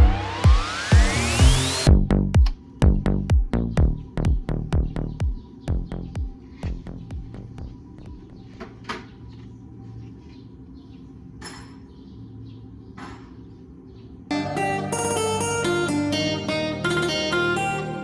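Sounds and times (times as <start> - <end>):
steady low hum: 0.0 - 11.3
guitar music: 14.3 - 18.0.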